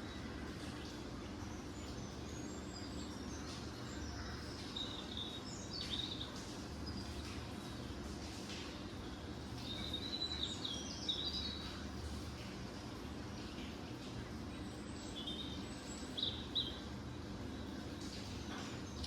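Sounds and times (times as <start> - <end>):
small birds chirping: 0.8 - 7.4, 9.5 - 12.1, 14.6 - 19.0.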